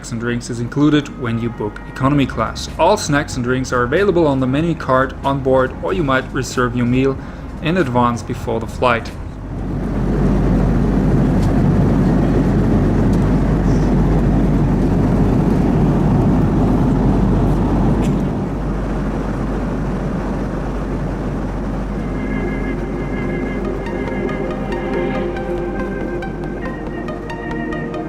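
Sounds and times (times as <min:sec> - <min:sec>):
jet airliner engine rumble: 0:00.0 - 0:28.0.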